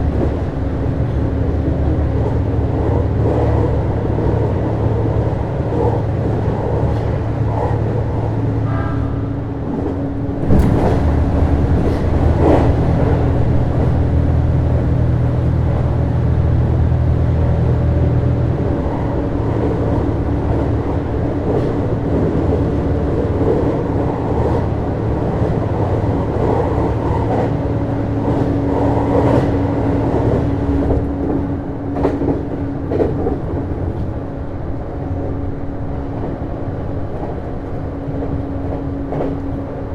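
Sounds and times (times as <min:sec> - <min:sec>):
train engine humming: 0:00.0 - 0:39.9
wheel noise on rails: 0:00.0 - 0:39.9.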